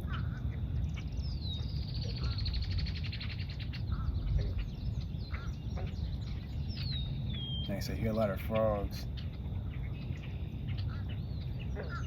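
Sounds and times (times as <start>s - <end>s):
bird whistling and trilling: 6.7s - 7.8s.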